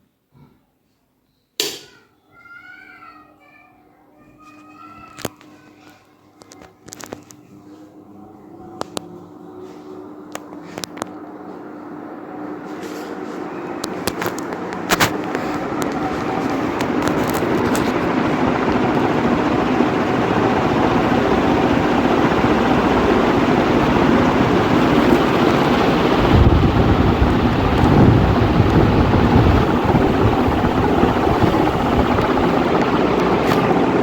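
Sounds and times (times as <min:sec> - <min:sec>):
ceiling fan whirring: 0:00.1 - 0:34.0
deep rumble: 0:18.2 - 0:34.0.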